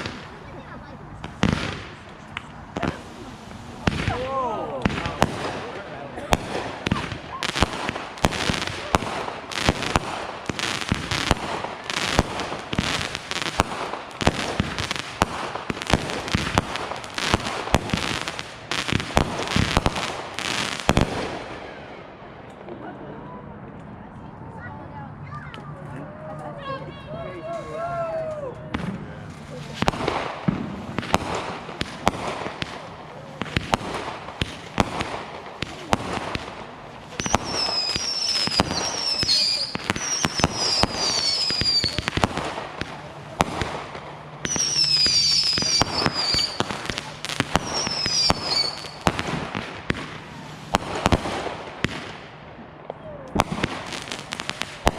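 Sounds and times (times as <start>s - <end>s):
fireworks hiss: 0.0s - 21.6s, 29.3s - 52.3s
fireworks bangs: 0.0s - 22.5s, 28.7s - 54.9s
high-pitched firework whistles: 37.2s - 42.1s, 44.4s - 46.8s, 47.5s - 49.1s.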